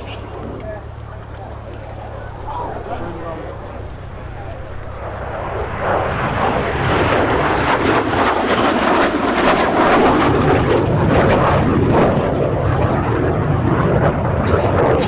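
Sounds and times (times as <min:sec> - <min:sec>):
crackling jet engine roar: 0:00.0 - 0:15.0.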